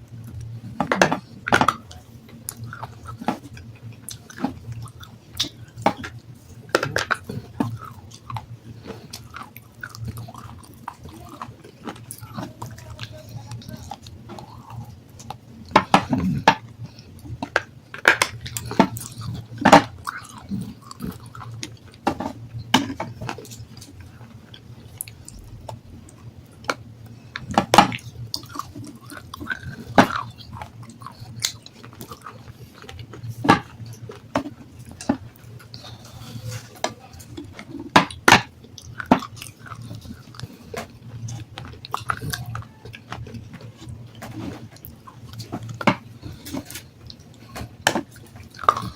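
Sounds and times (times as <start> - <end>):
steady low hum: 0.0 - 48.9
chewing crunches on stone: 0.1 - 48.9.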